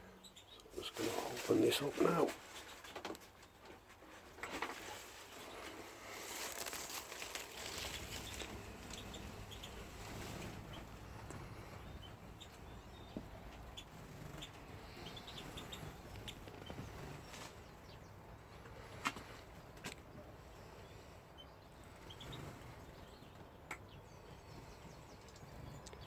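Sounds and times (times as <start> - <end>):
finches chirping: 0.0 - 3.6, 7.5 - 26.0
rustling and clattering: 0.8 - 11.8.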